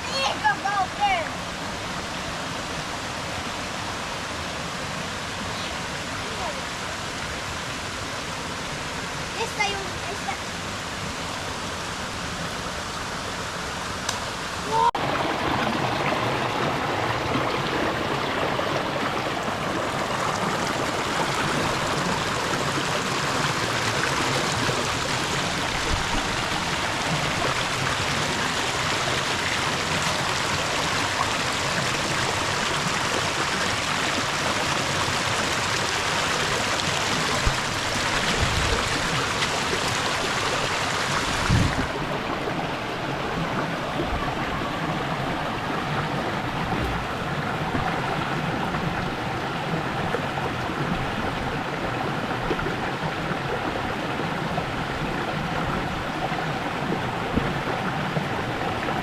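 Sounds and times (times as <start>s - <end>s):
running water rushing: 0.0s - 59.0s
low thumps: 46.6s - 48.0s.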